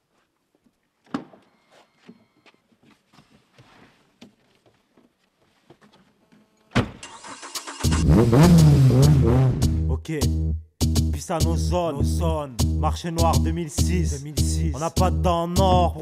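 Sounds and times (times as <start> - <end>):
car engine starting: 7.0 - 9.9
loud bass-heavy music: 7.8 - 16.0.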